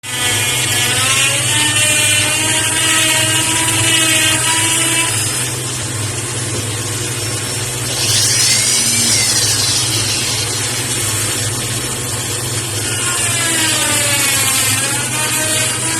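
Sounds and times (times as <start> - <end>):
power tool motor whining: 7.4 - 15.9.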